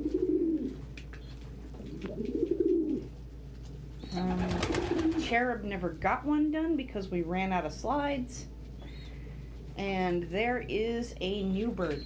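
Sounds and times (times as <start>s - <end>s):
pigeons cooing: 0.0s - 0.8s, 1.8s - 3.2s, 4.1s - 5.3s.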